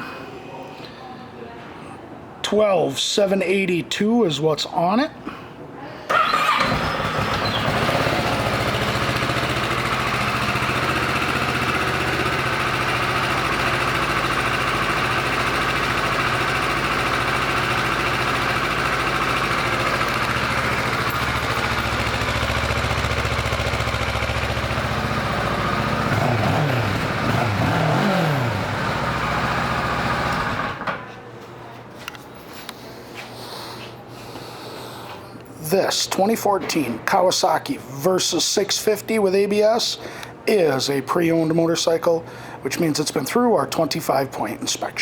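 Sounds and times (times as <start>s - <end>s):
motorcycle engine idling: 6.2s - 30.8s.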